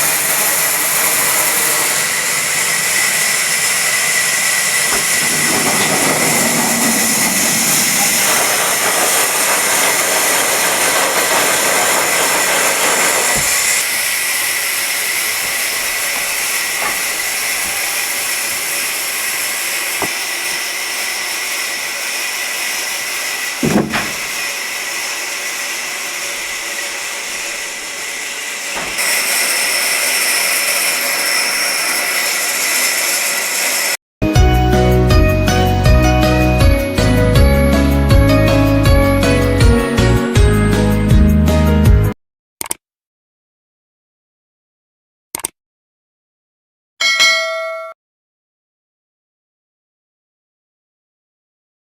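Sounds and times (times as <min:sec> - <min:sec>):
sawmill machinery hissing: 0:00.0 - 0:34.0
high machine whine: 0:00.5 - 0:29.8
knock: 0:23.6 - 0:24.4.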